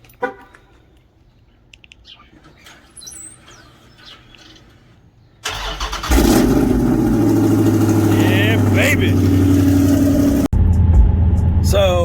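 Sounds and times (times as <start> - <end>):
faint bird chirps: 0.6 - 5.4
car engine cranking and starting: 2.4 - 11.6.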